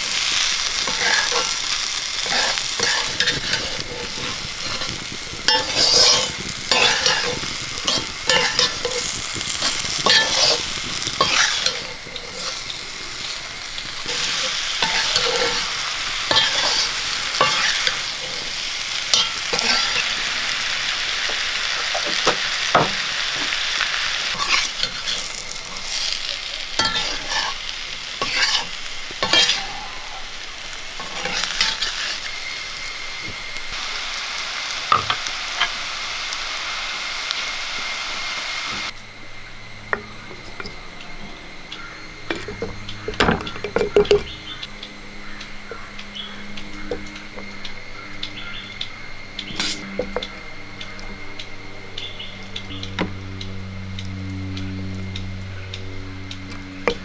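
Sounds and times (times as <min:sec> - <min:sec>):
spatula scraping a pan: 0:00.0 - 0:33.6, 0:49.5 - 0:50.3
mango slices sizzling in oil: 0:00.0 - 0:57.0.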